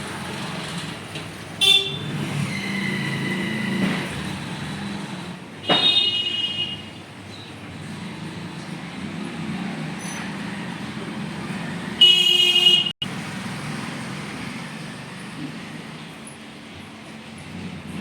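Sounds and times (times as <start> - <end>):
street traffic noise: 0.0 - 18.0
vehicle horn honking: 1.6 - 2.2, 5.7 - 6.9, 12.0 - 13.0.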